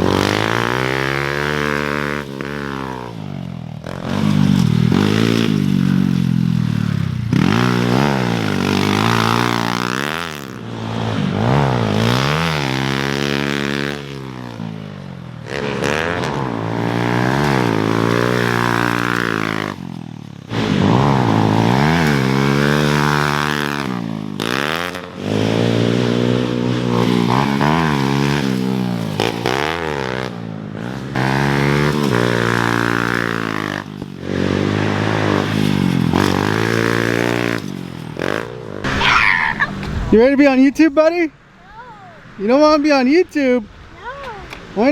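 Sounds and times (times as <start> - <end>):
dirt bike engines revving: 0.0 - 44.9.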